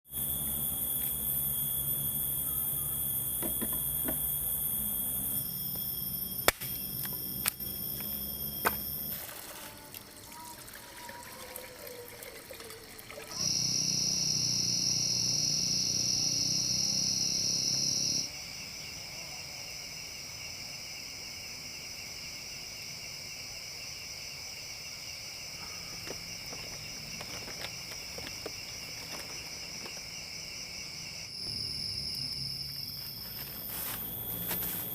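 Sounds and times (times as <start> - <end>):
high insect buzzing: 0.1 - 9.2, 13.4 - 18.3, 25.7 - 34.9
trickling water: 9.1 - 13.6.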